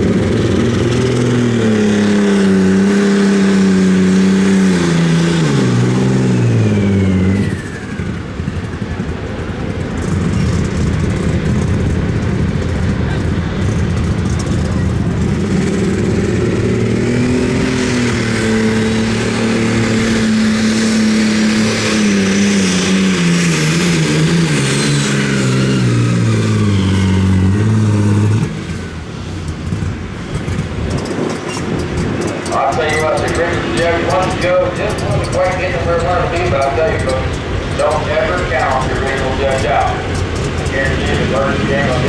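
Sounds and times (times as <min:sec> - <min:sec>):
tractor engine under load: 0:00.0 - 0:42.0
high whine: 0:32.2 - 0:42.0.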